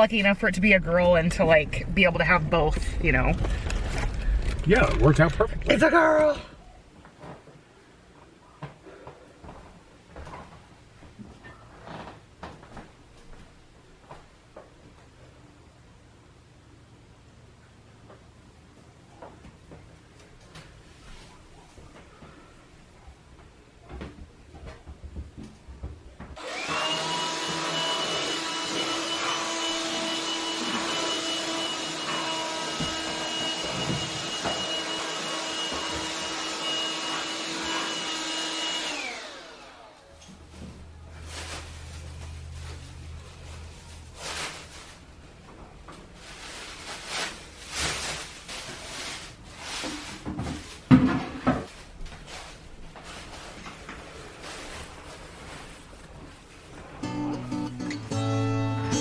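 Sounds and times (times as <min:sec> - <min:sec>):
appliance motor whining: 0:26.4 - 0:40.1.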